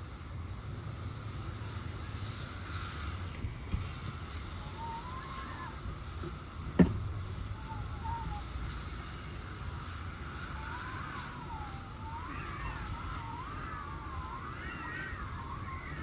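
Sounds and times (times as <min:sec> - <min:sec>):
strong wind rumbling and buffeting: 0:00.0 - 0:16.0
wind whistling: 0:00.0 - 0:16.0.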